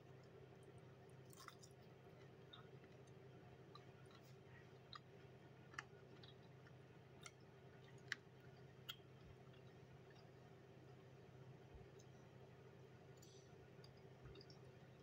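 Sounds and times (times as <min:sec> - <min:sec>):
low steady hum: 0:00.0 - 0:15.0
mouth clicks while chewing: 0:01.3 - 0:05.1, 0:05.7 - 0:10.3.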